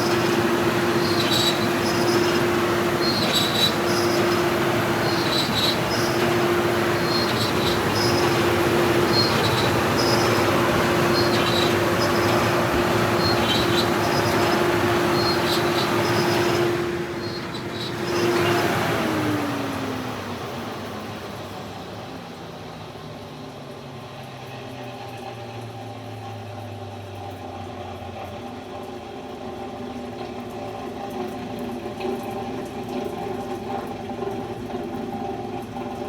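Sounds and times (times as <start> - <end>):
high-pressure water spray hissing: 0.0 - 19.7
pump humming: 0.0 - 23.3.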